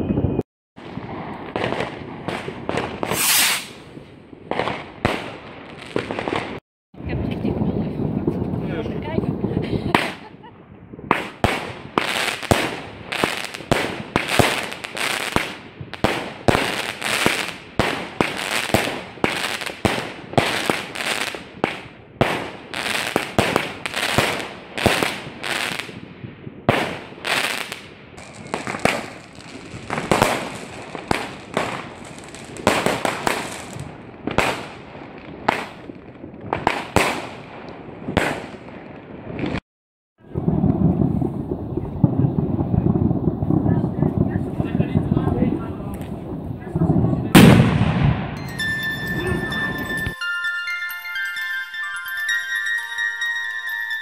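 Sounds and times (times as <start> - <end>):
fireworks bangs: 0.0 - 39.6, 40.2 - 50.2.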